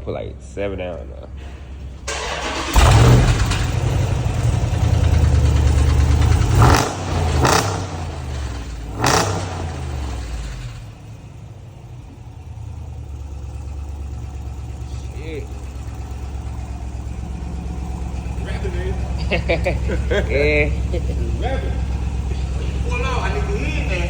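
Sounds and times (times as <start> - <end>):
car engine revving: 0.4 - 24.0.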